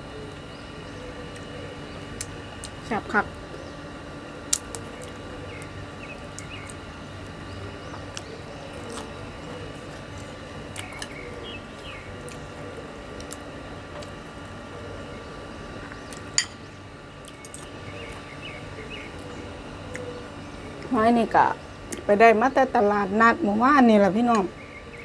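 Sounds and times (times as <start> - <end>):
wet squishing chewing: 6.4 - 11.2.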